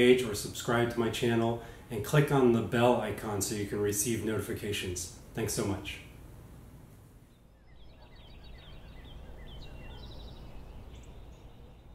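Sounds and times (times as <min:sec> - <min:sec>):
birds chirping: 0:07.2 - 0:11.9
bird trill: 0:07.3 - 0:11.9.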